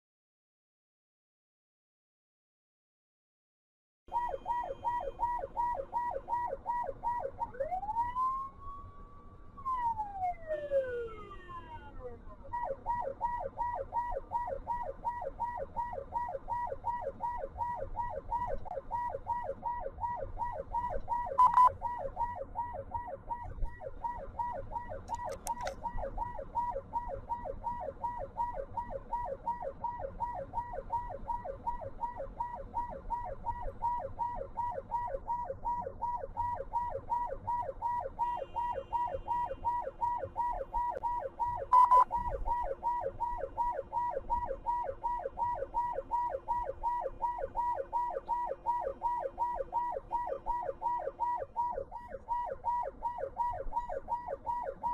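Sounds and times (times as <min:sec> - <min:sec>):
siren yelping: 0:04.1 - 0:54.9.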